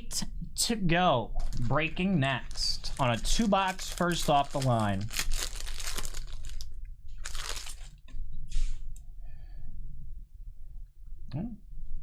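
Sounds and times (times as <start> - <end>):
card packaging tearing and crinkling: 2.5 - 6.6, 7.2 - 8.0.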